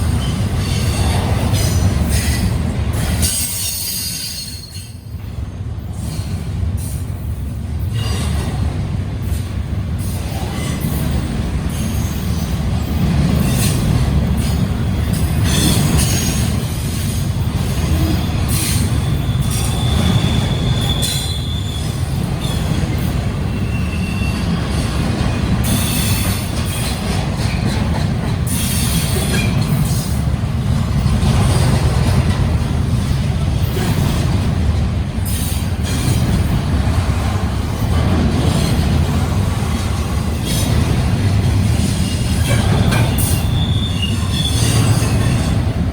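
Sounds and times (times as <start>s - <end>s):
train wheels squealing: 0.0s - 5.2s, 7.8s - 8.5s, 10.0s - 27.7s, 28.4s - 30.2s, 41.8s - 45.7s
freight train rumbling: 0.0s - 45.9s.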